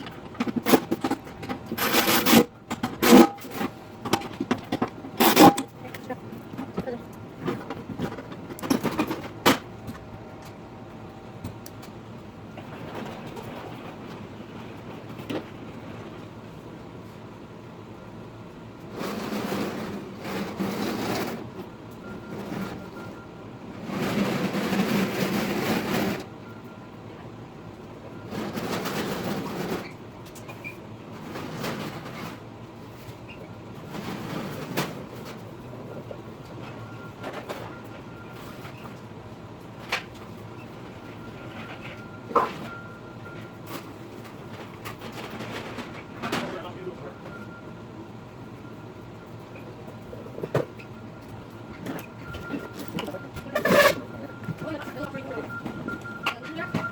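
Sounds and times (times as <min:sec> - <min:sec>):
clattering knocks and clicks: 0:00.0 - 0:10.6, 0:39.7 - 0:46.6.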